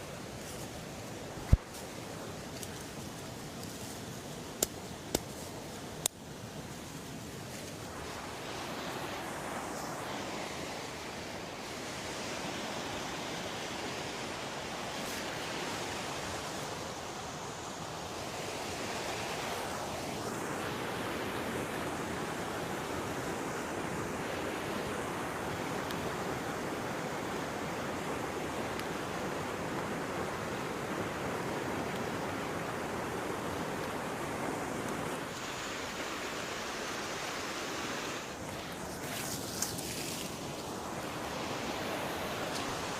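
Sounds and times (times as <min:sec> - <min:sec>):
river water rushing: 0:00.0 - 0:42.9.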